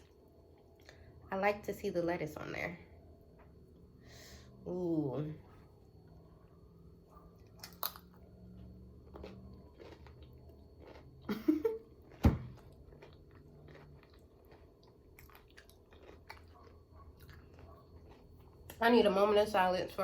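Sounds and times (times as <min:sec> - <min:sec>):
person chewing food: 0:05.5 - 0:18.8
crunching sounds: 0:06.2 - 0:18.8.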